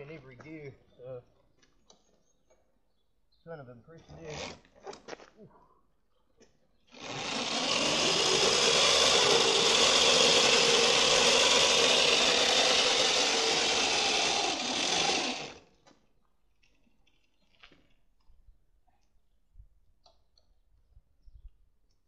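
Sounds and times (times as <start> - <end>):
electric motor whirring: 6.9 - 15.6.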